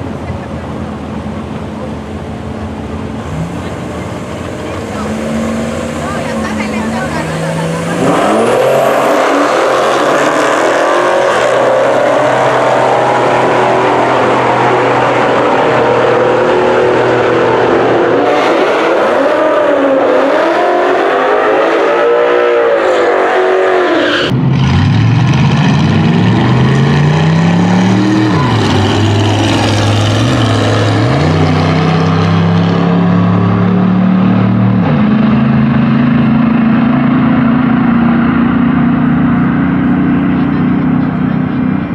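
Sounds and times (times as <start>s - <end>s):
car engines at full throttle: 0.0s - 41.9s
engine revving and shifting: 3.2s - 41.9s.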